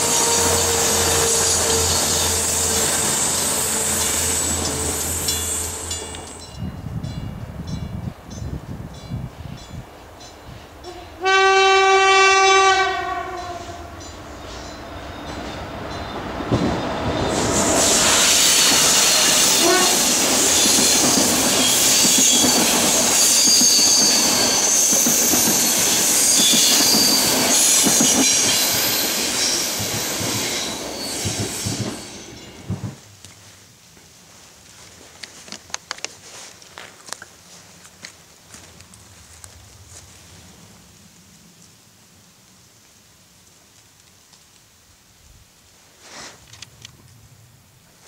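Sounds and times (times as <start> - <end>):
train horn: 0.0 - 4.6, 10.8 - 14.0, 19.1 - 20.2
wheel squeal: 0.0 - 5.8, 17.2 - 32.4
train wheels on rails: 0.0 - 11.4, 12.2 - 40.7.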